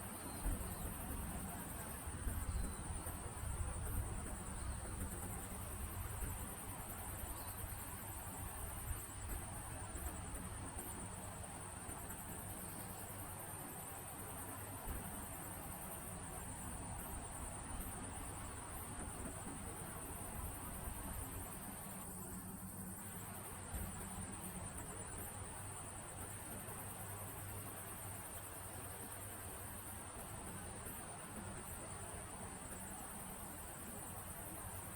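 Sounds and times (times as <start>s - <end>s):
pulsing insect chirr: 0.0s - 19.0s
insects trilling: 0.0s - 34.9s
soft steady hiss: 0.0s - 34.9s.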